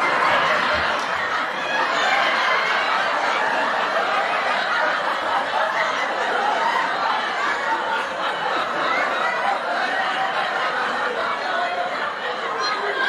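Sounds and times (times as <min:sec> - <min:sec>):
people laughing: 0:00.0 - 0:13.0.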